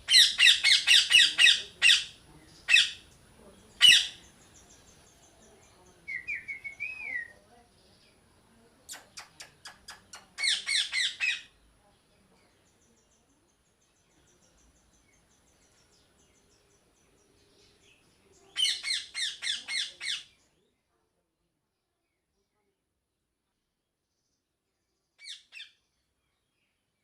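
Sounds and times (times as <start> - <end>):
parrot squawking: 0.0 - 3.0, 3.8 - 4.2, 10.4 - 11.5, 18.6 - 20.2
faint bird chirping: 0.0 - 27.0.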